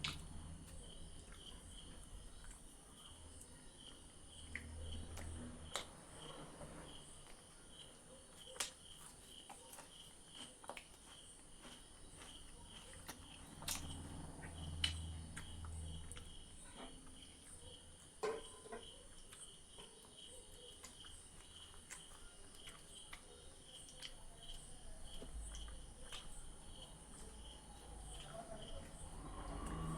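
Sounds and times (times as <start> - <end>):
crickets chirping: 0.0 - 29.9
muffled chewing: 0.0 - 29.9
wet eating smacks: 8.4 - 16.3.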